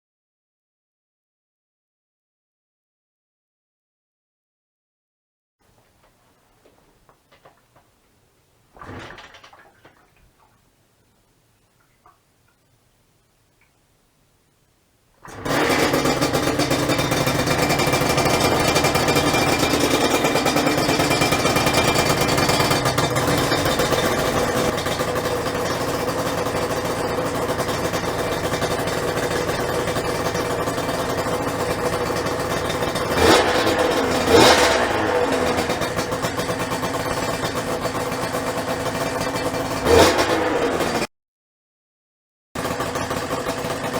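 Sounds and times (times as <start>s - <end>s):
two-stroke motorcycle engine idling: 15.2s - 41.1s, 42.6s - 43.9s.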